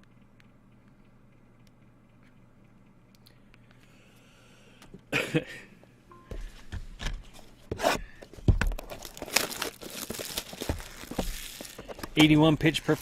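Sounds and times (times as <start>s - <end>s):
packaging crinkling and rustling: 8.3s - 13.0s.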